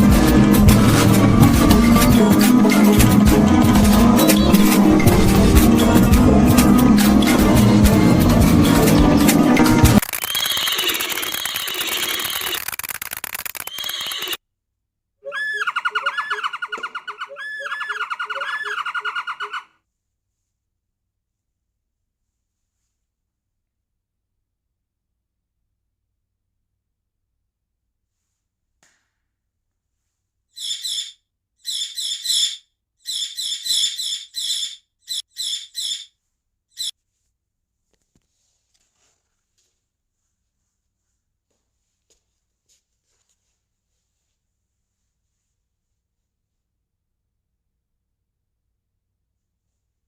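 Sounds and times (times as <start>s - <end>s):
bird high trilling chatter: 10.1s - 14.4s, 15.3s - 19.6s, 30.6s - 36.1s.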